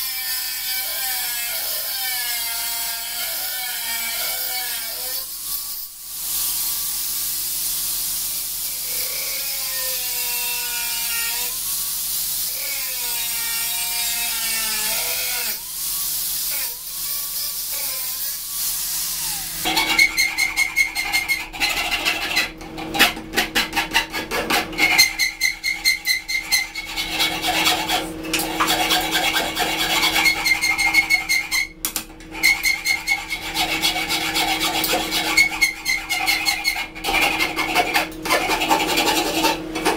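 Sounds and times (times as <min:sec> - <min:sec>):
file rasping on knife blade: 0:00.0 - 0:06.6, 0:08.3 - 0:39.9.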